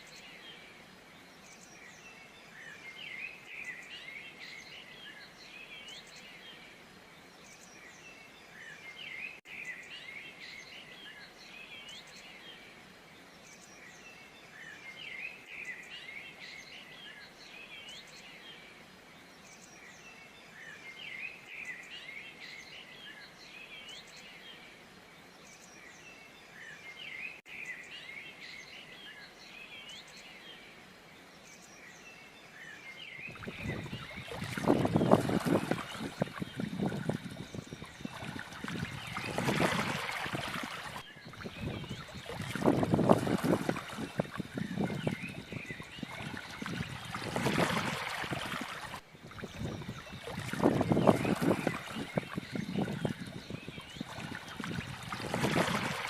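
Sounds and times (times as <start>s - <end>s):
small birds chirping: 25.2s - 56.0s.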